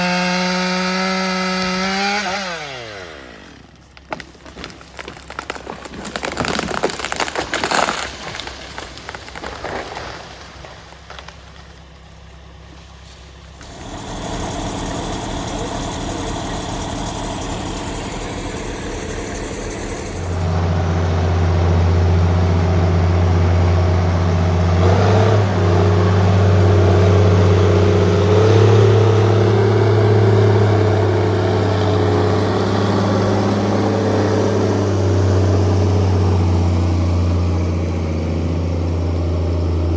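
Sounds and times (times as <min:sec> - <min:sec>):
heavy diesel engine running: 0:10.6 - 0:39.9
rough rushing noise: 0:13.6 - 0:20.8.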